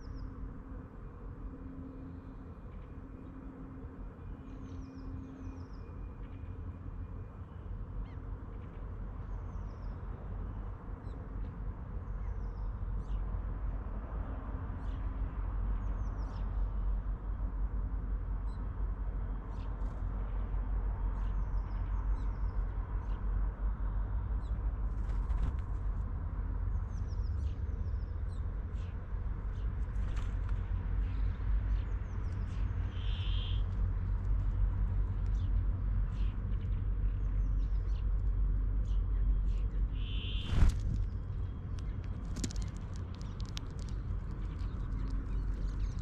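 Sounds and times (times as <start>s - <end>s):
steady low rumble: 0.0s - 46.0s
small birds chirping: 26.7s - 33.8s, 35.0s - 46.0s.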